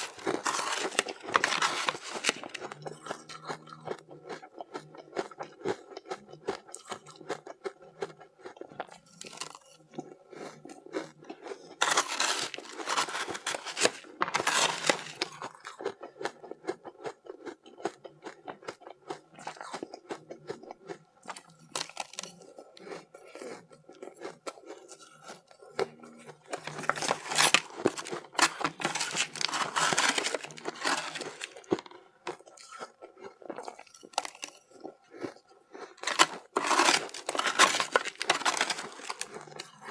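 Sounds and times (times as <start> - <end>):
crunching bites of ice: 0.0 - 5.8, 8.5 - 9.7, 10.4 - 17.2, 21.3 - 23.6, 26.5 - 39.9
crackly chewing: 0.0 - 39.9.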